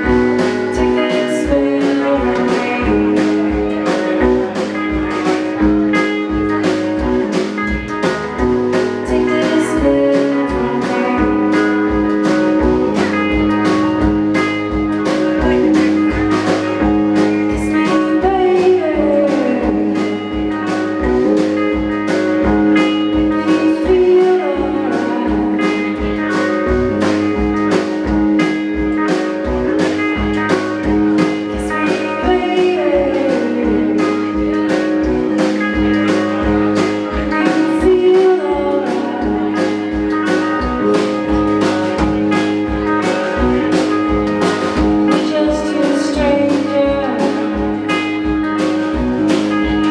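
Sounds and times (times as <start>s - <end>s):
person singing: 0.0s - 5.3s, 8.9s - 12.4s, 17.2s - 20.6s, 22.8s - 26.5s, 31.2s - 35.5s, 37.1s - 40.6s, 45.1s - 48.2s
blues band playing: 0.0s - 49.9s
guitar: 0.0s - 49.9s
steady drum beat: 0.0s - 49.9s.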